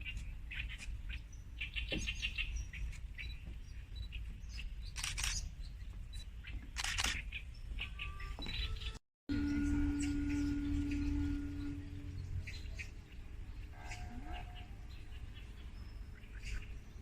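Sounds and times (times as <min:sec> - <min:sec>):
birds chirping and calling: 0:00.0 - 0:17.0
low rumble: 0:09.3 - 0:16.2.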